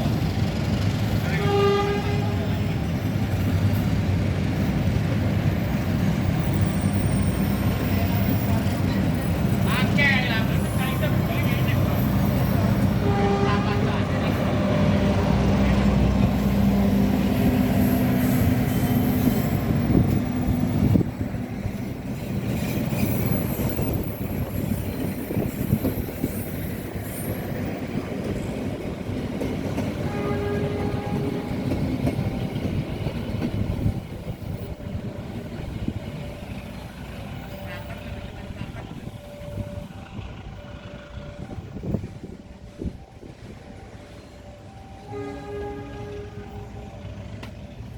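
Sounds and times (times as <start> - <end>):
diesel locomotive engine rumble: 0.0 - 47.9
train wheel clatter: 21.7 - 36.3.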